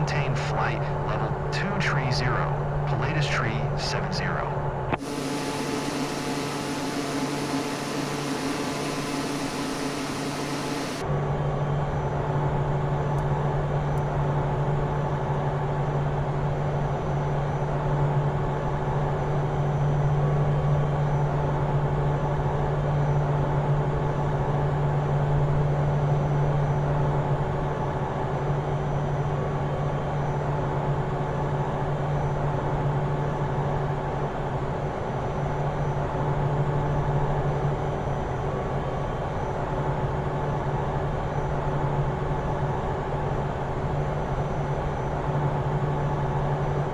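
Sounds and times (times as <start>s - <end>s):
aircraft cockpit engine drone: 0.0s - 46.9s
airflow noise: 4.9s - 11.0s.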